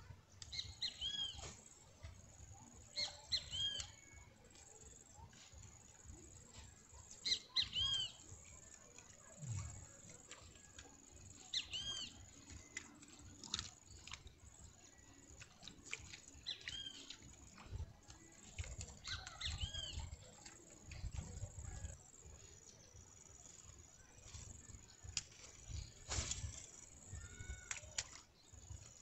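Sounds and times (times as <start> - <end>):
faint clicks: 27.4 - 29.0.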